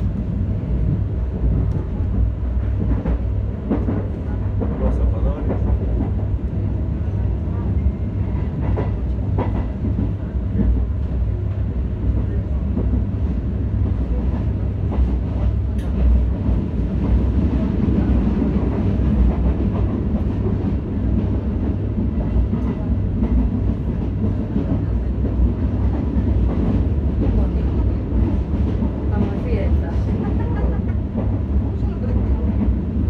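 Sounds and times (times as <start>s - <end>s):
train wheels rumbling: 0.0s - 33.0s.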